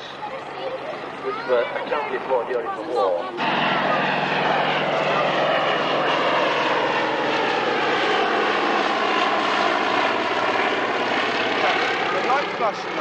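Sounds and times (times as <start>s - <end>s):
biplane radial engine flypast: 0.0s - 13.0s.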